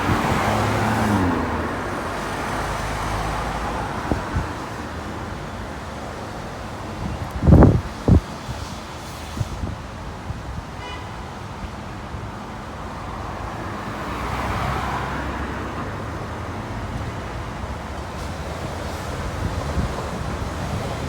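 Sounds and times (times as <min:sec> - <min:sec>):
vehicle passing loudly: 0:00.0 - 0:04.7, 0:13.6 - 0:17.0
road traffic passing: 0:00.0 - 0:21.0.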